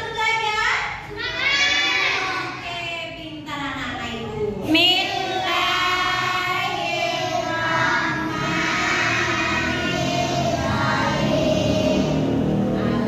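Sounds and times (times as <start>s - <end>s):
group of voices singing: 4.8s - 13.0s.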